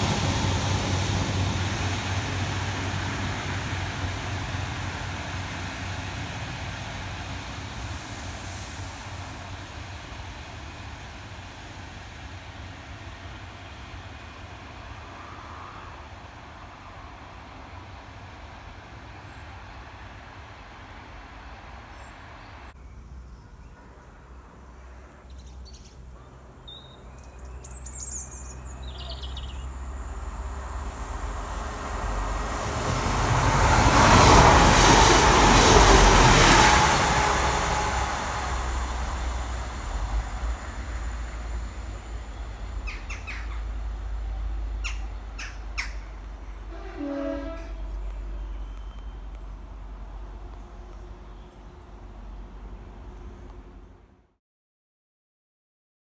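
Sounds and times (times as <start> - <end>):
diesel train passing: 0.0 - 54.3
birds chirping: 21.9 - 32.0, 34.3 - 54.0.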